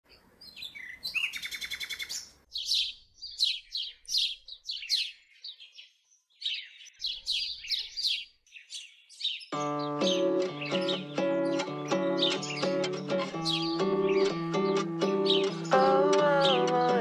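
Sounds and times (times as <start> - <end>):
high descending bird chirps: 0.4 - 5.6.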